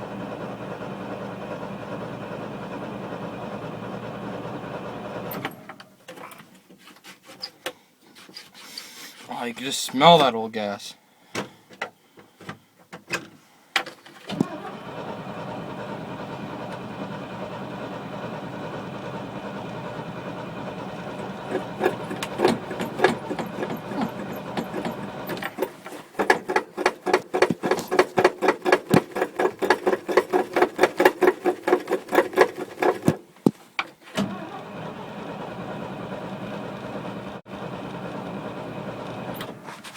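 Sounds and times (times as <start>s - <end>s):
engine starting and running: 0.0s - 5.9s, 14.2s - 39.9s.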